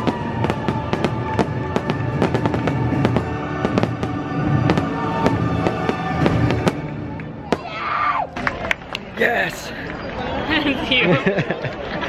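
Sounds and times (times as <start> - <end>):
fireworks bangs and crackles: 0.0 - 9.2.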